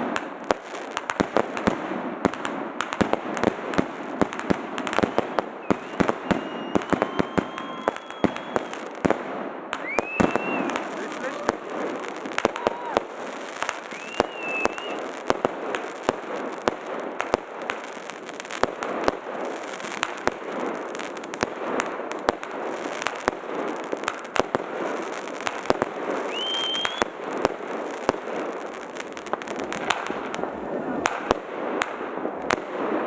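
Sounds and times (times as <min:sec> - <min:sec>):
fireworks crackling: 0:00.0 - 0:33.0
loud firework reports: 0:03.1 - 0:17.8, 0:18.8 - 0:33.0
firework whistle: 0:05.0 - 0:09.0, 0:09.7 - 0:15.4, 0:25.0 - 0:27.2.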